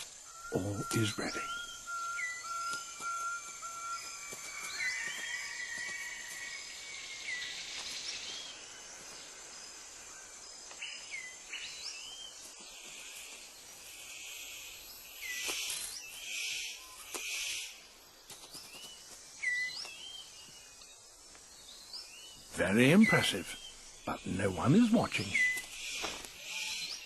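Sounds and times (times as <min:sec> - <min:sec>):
whistled bird calls: 0:00.0 - 0:08.6, 0:22.0 - 0:27.0
insects buzzing: 0:00.0 - 0:27.0.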